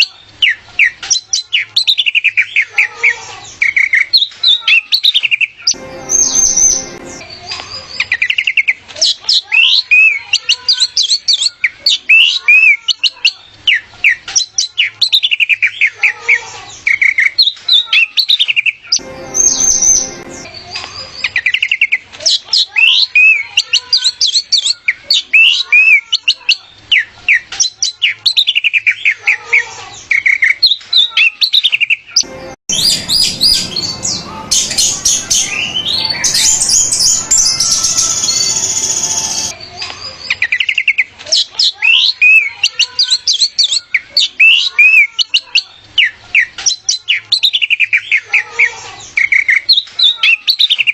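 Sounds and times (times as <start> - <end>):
bird trills: 31.5 - 39.6
thrush singing whistles and chirps: 32.7 - 39.5.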